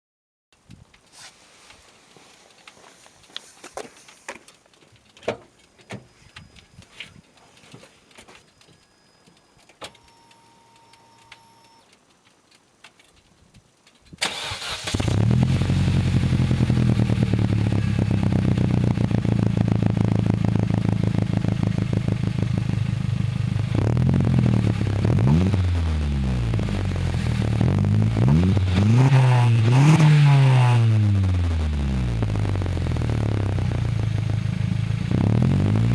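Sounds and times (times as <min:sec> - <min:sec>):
car engine starting and idling: 0:14.0 - 0:35.9
engine revving: 0:14.3 - 0:35.9.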